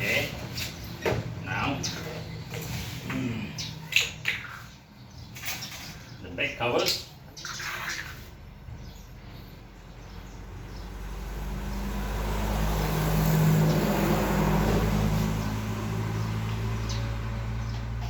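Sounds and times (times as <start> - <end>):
vehicle engine hum: 8.7 - 18.0.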